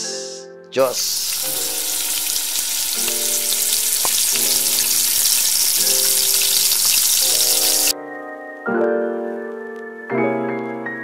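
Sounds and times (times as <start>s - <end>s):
soft keyboard music: 0.0s - 11.0s
potatoes sizzling in oil: 0.9s - 7.9s.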